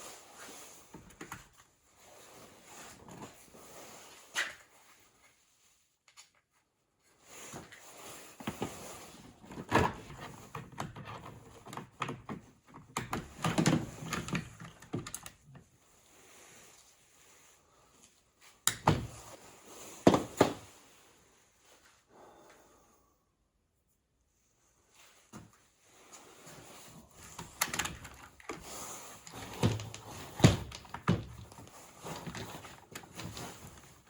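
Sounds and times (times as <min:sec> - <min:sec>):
plastic parts knocking and rattling: 0:08.4 - 0:15.7, 0:27.1 - 0:34.0.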